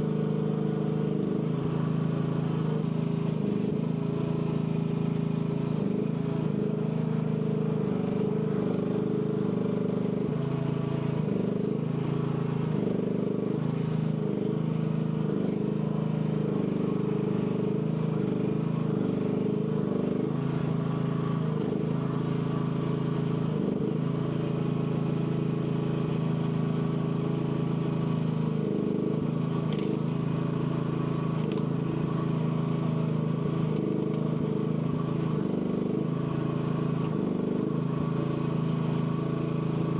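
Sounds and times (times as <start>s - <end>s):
excavator engine running: 29.5s - 32.3s.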